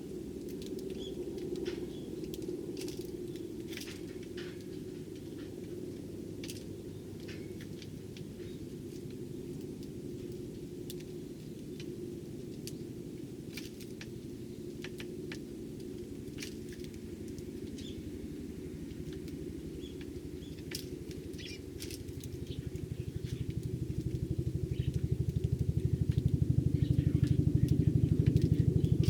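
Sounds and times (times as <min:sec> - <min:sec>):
sparrows chirping: 0:00.9 - 0:03.8, 0:06.6 - 0:08.8, 0:15.9 - 0:29.0
low drone with pulsing beat: 0:16.9 - 0:29.0.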